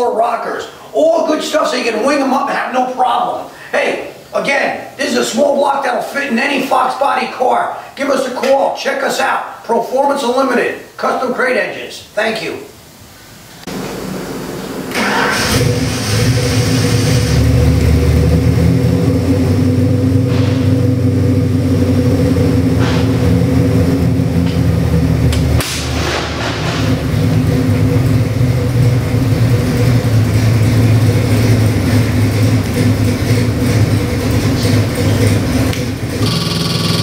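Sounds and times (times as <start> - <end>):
car engine running: 13.7 - 37.0.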